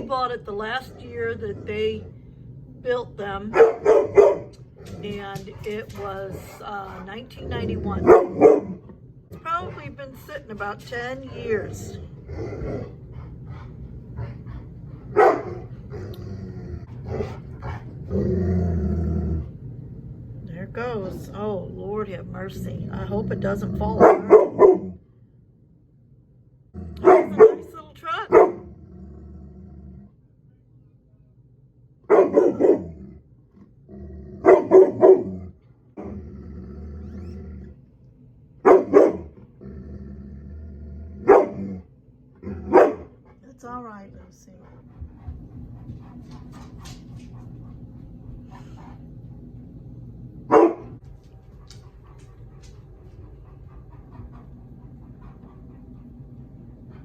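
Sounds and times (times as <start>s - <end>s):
low mechanical hum: 0.0s - 57.0s
dog barking: 3.5s - 4.6s, 8.0s - 8.8s, 15.2s - 15.7s, 24.0s - 25.0s, 27.0s - 27.7s, 28.3s - 28.7s, 32.1s - 32.9s, 34.4s - 35.3s, 38.6s - 39.3s, 41.2s - 41.7s, 42.6s - 43.2s, 50.5s - 51.0s.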